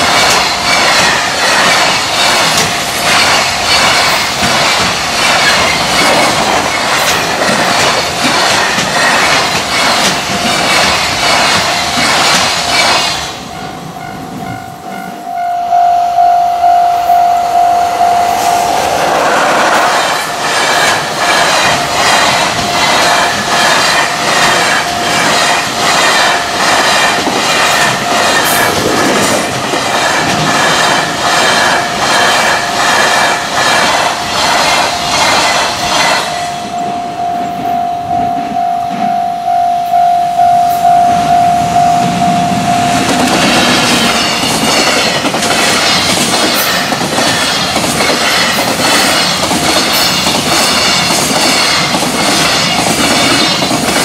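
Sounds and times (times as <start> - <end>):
freight train wheels clattering: 0.0 - 15.3, 18.2 - 39.1, 41.6 - 54.0
level crossing bell ringing: 14.1 - 19.0, 36.4 - 43.2.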